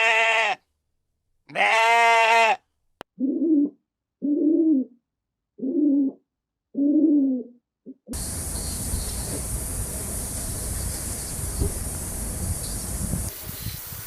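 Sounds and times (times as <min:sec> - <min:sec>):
wavering bleat: 0:00.0 - 0:00.6, 0:01.5 - 0:02.6.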